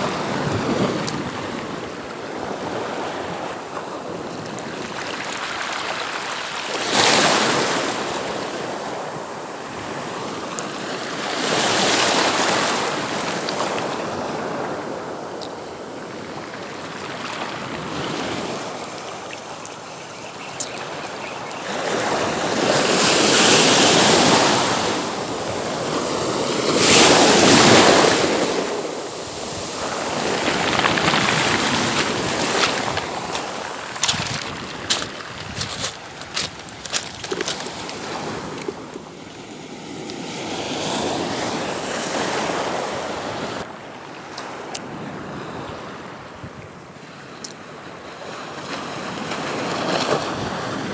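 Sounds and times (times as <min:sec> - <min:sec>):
sea waves breaking on beach: 0:00.0 - 0:46.2
wind buffeting microphone: 0:29.2 - 0:39.0.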